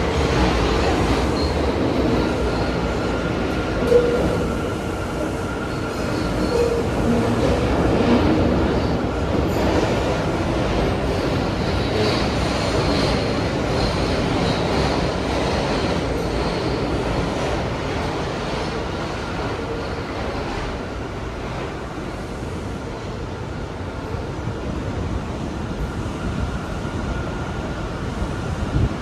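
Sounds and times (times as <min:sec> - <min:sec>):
subway train wheels rumbling: 0:00.0 - 0:29.0
high wheel squeal: 0:00.1 - 0:07.9.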